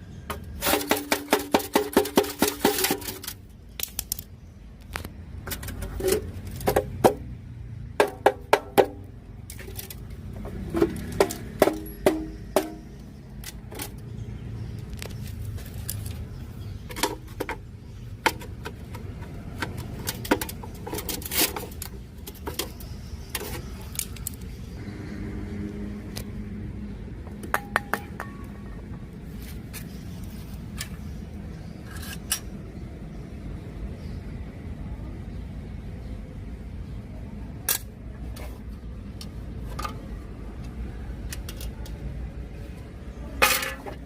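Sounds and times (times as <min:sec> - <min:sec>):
small tools and parts clinking: 0:00.3 - 0:06.9, 0:09.4 - 0:24.6, 0:29.7 - 0:32.6, 0:39.2 - 0:42.2, 0:43.4 - 0:44.0.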